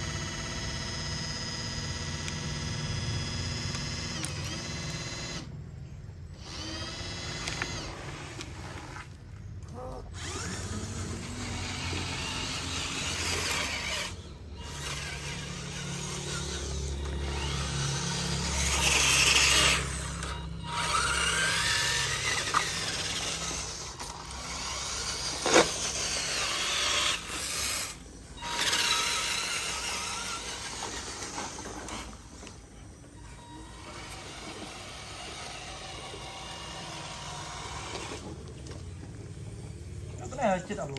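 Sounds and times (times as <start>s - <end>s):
small electric motors whirring: 0.0s - 40.9s.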